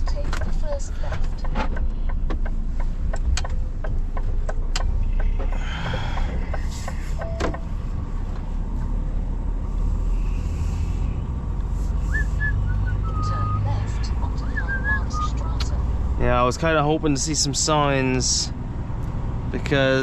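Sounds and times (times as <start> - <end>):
regular ticking: 0.0 - 8.5
lorry engine running: 0.0 - 20.0.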